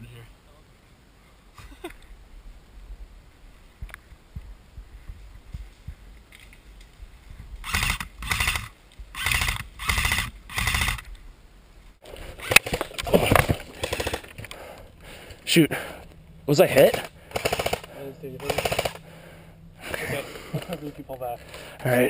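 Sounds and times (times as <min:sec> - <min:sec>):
rustling: 0:00.8 - 0:16.3
sharp clicks: 0:07.6 - 0:11.2, 0:12.4 - 0:15.4, 0:16.8 - 0:19.1
heavy breathing: 0:13.6 - 0:16.2, 0:17.0 - 0:18.2, 0:18.9 - 0:20.7, 0:21.3 - 0:21.9.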